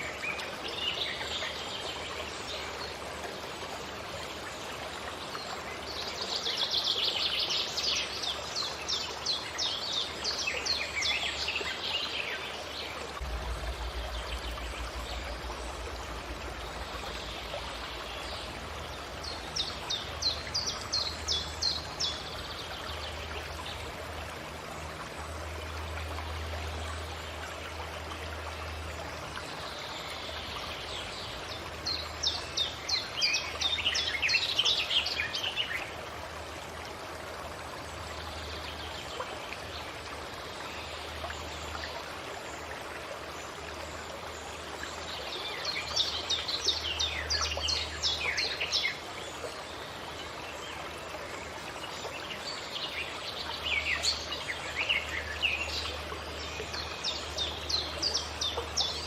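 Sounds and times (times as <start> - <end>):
stream rushing: 0.0 - 59.0
songbird singing: 5.6 - 23.8.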